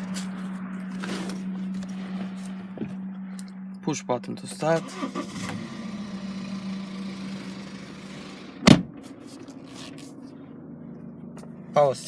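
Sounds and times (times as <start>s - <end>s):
diesel engine starting and idling: 4.4s - 12.0s.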